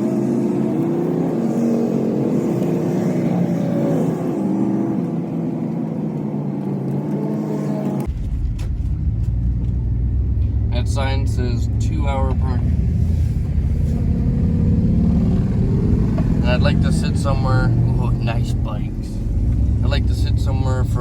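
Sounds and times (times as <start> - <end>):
van engine running: 0.0 - 21.0
deep low rumble: 8.0 - 21.0.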